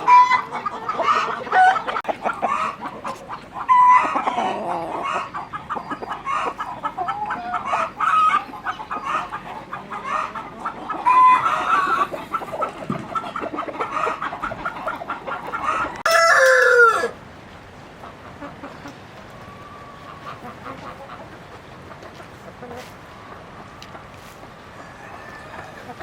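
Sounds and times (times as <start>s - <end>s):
chickens clucking: 0.0s - 26.0s
chicken drawn-out falling call: 11.0s - 17.2s.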